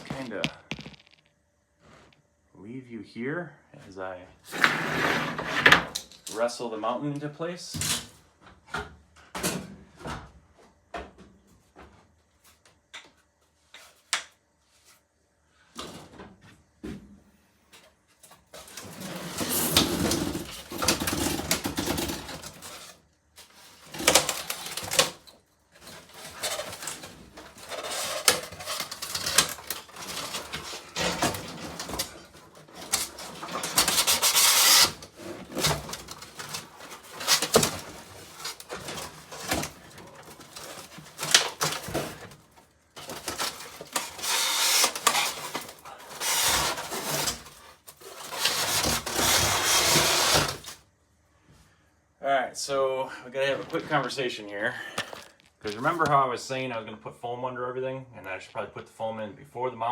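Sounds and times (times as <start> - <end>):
knocks and clicks: 0.0 - 1.3
scraping and rubbing: 0.0 - 2.2, 4.5 - 5.7, 25.8 - 42.2, 43.0 - 50.8, 53.4 - 56.2.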